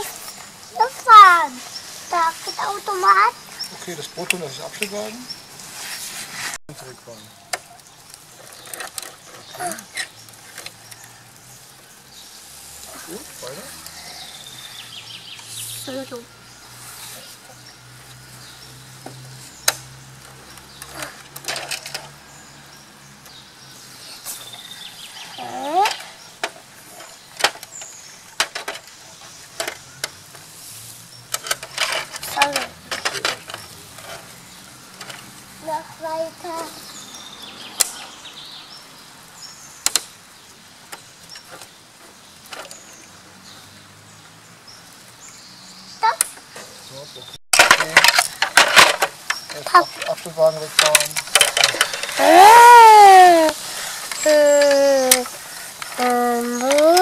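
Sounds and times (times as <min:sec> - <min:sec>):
plastic toys clicking and rattling: 0:08.2 - 0:11.0, 0:20.6 - 0:22.2, 0:25.4 - 0:30.2, 0:31.3 - 0:34.3, 0:47.6 - 0:57.0
toy pieces clicking and knocking: 0:56.0 - 0:57.0.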